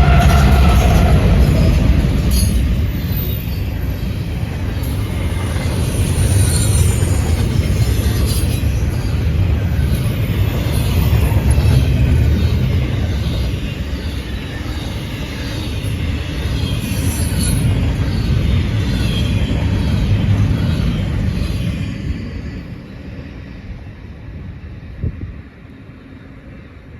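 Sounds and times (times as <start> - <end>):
wheels clattering on rails: 0.0 - 22.9
freight train rolling past: 0.0 - 26.9.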